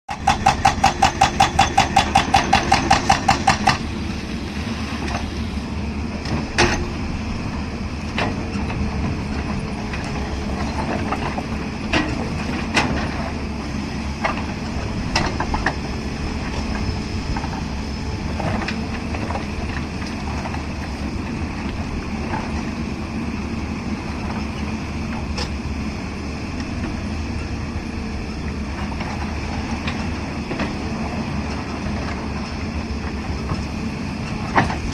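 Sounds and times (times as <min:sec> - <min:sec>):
hydraulic breaker hammering: 0:00.1 - 0:03.8
diesel engine running: 0:00.1 - 0:34.9.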